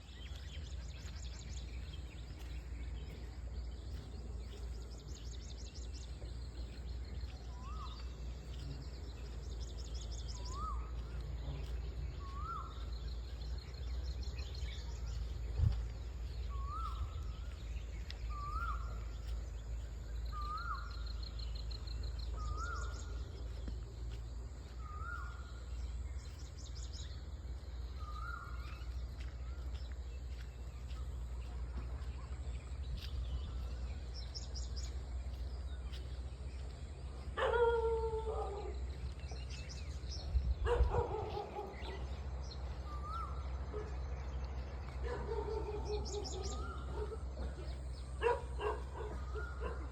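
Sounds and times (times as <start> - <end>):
steady low rumble: 0.0 - 37.4
small birds trilling: 0.0 - 49.9.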